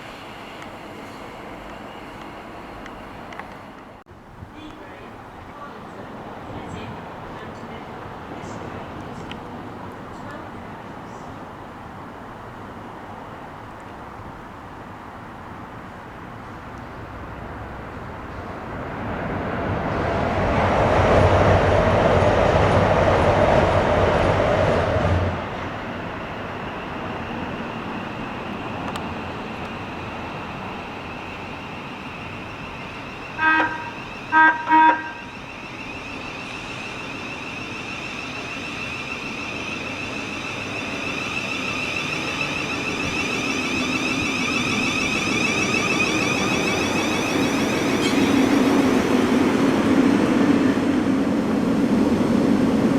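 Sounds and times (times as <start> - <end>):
train passing: 0.0 - 52.9
whine of approaching train: 0.0 - 52.9
train horn toots: 33.3 - 35.4.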